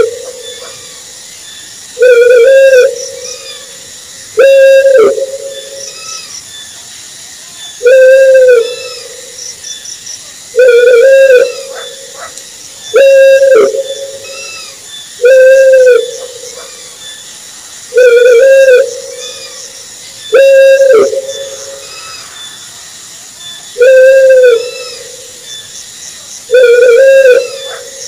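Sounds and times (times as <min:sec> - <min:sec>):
owl hooting: 0:00.0 - 0:01.0, 0:02.0 - 0:03.8, 0:04.4 - 0:06.3, 0:07.8 - 0:09.4, 0:10.6 - 0:12.3, 0:12.9 - 0:16.8, 0:17.9 - 0:19.6, 0:20.3 - 0:22.3, 0:23.8 - 0:25.4, 0:26.5 - 0:28.0.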